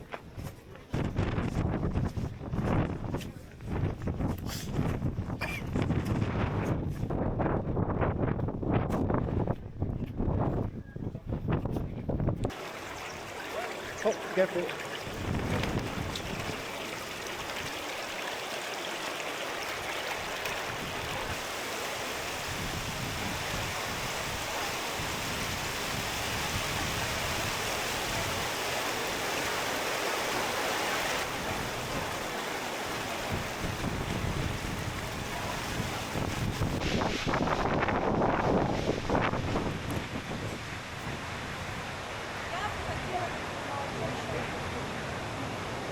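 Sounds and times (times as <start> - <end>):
wind rumbling on microphone: 0.0 - 14.0, 14.8 - 18.3, 19.6 - 45.9
rushing stream water: 12.5 - 45.9.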